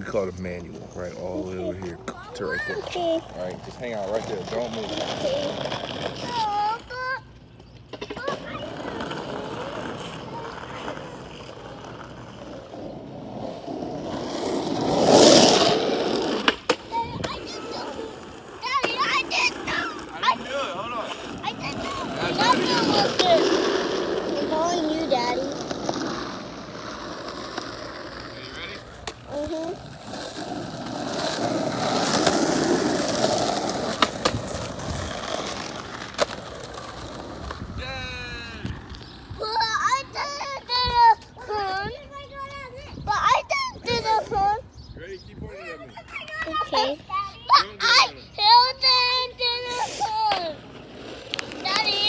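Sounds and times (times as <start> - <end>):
skateboard wheels rolling on asphalt: 0.0 - 44.8, 45.5 - 52.0
skateboard clacks: 1.9 - 6.9, 7.8 - 37.8, 50.1 - 52.0.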